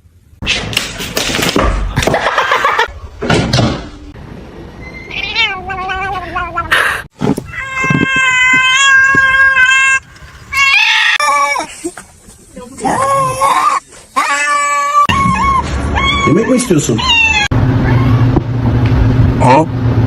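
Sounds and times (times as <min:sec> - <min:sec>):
cat meowing: 0:05.1 - 0:06.7, 0:07.5 - 0:11.7, 0:12.9 - 0:18.3
noisy scuffling: 0:11.4 - 0:14.2.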